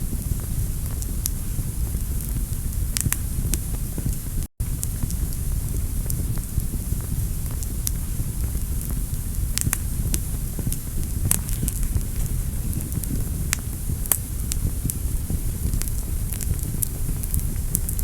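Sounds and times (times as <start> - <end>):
fire crackles and pops: 0.0 - 18.0
wood fire rumbling: 0.0 - 18.0.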